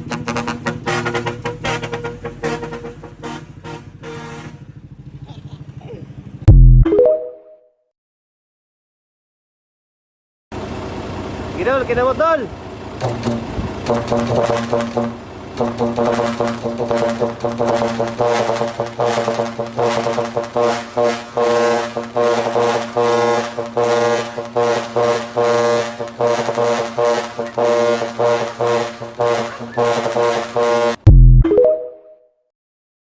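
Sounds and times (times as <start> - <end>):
deep horn blast: 13.0 - 31.4
musical air horn tune: 13.0 - 31.4.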